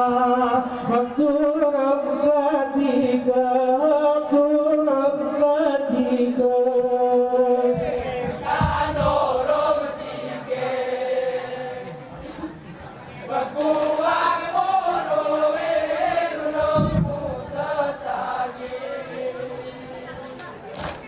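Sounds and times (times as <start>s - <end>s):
men chanting in unison: 0.0s - 12.2s, 13.2s - 20.3s.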